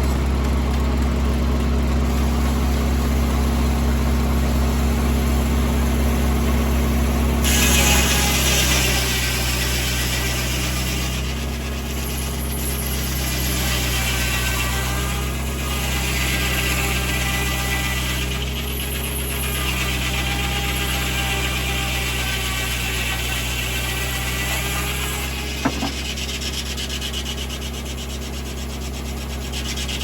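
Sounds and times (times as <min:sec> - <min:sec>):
tractor engine running: 0:00.0 - 0:07.4, 0:25.3 - 0:27.0
circular saw blade cutting log: 0:00.0 - 0:30.0.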